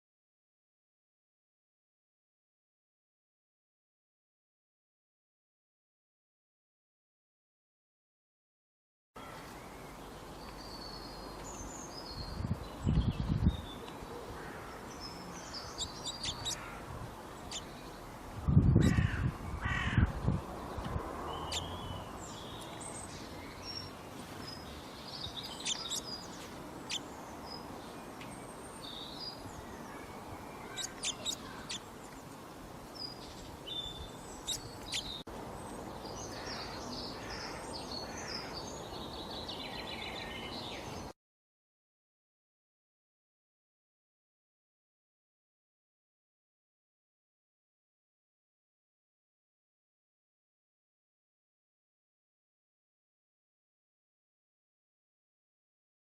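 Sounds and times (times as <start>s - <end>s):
birds chirping and calling: 9.2s - 41.1s
harsh low bird calls: 11.9s - 27.7s, 28.4s - 32.2s, 33.0s - 35.2s.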